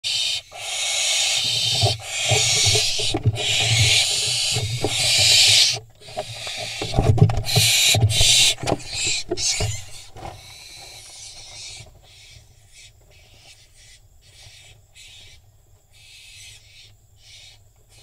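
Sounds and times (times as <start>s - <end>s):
owl fledglings hissing screeches: 0.0s - 15.3s, 16.0s - 17.6s
talons scrabbling on wood: 1.4s - 12.1s.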